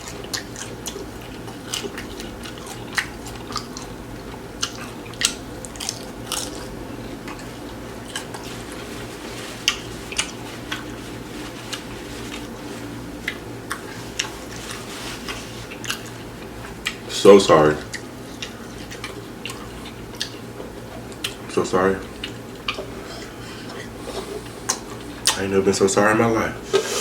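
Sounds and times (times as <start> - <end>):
person chewing food: 0.0 - 12.6, 13.2 - 17.0, 17.8 - 21.5, 22.1 - 25.4
steady low hum: 0.0 - 27.0
wet mouth clicks and crunches: 4.6 - 6.7.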